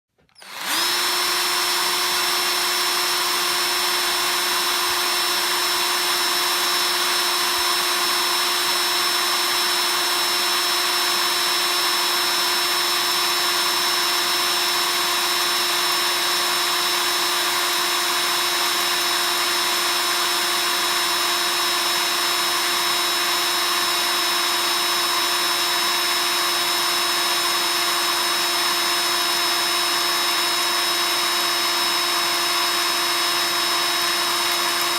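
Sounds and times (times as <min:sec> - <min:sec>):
electric drill whining: 0:00.2 - 0:34.9.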